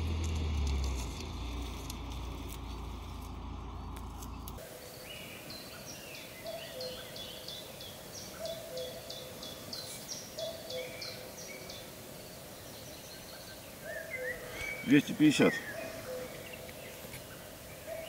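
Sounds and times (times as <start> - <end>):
bird singing high falling notes: 13.8 - 16.9.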